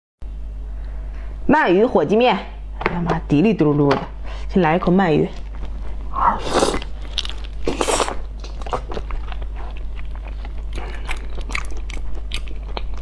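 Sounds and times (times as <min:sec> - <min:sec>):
steady chewing: 0:05.4 - 0:13.0.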